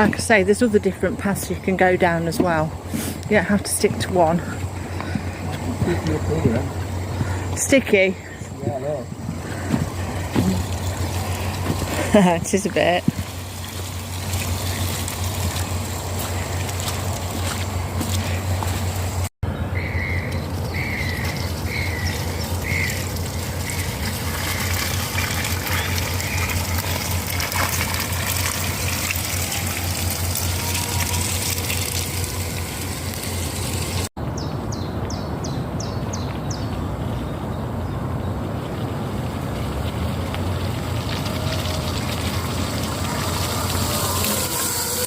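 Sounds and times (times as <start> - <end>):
electric motors humming: 0.0 - 34.1, 39.9 - 45.0
tyres on mud: 0.0 - 34.1, 38.6 - 45.0
bird calling: 4.3 - 12.2, 14.2 - 27.4.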